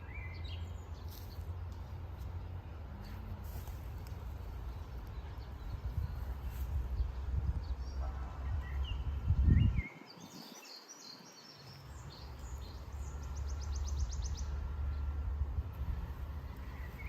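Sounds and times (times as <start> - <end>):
small birds chirping: 0.0 - 17.0
low rumble: 11.9 - 17.0.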